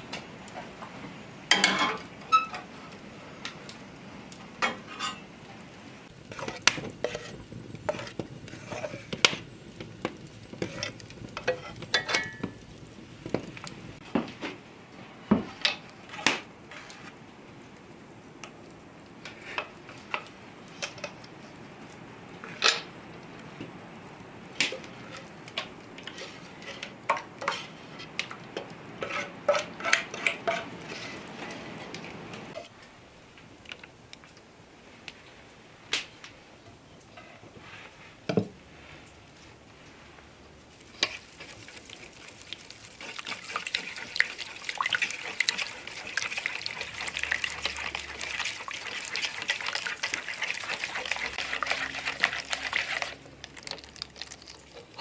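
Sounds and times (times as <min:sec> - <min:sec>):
kitchen utensils clinking and scraping: 0:01.5 - 0:02.7, 0:04.6 - 0:05.3, 0:10.5 - 0:12.5, 0:29.0 - 0:31.9, 0:43.0 - 0:53.2.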